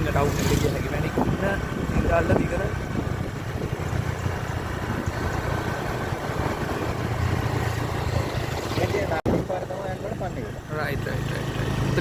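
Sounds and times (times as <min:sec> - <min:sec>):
road noise rush: 0:00.0 - 0:12.0
vehicle engine drone: 0:00.0 - 0:12.0.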